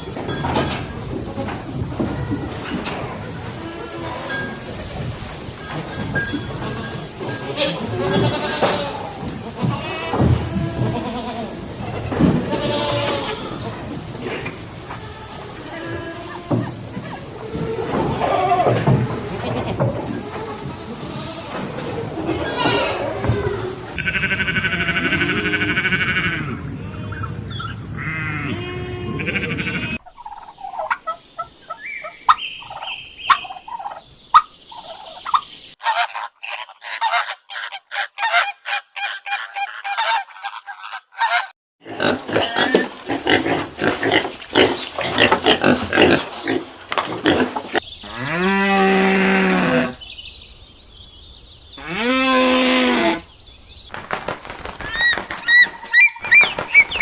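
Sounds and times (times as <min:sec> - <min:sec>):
animal and bird calls: 0:00.8 - 0:41.5, 0:42.4 - 0:57.0
fowl calling: 0:22.4 - 0:41.5.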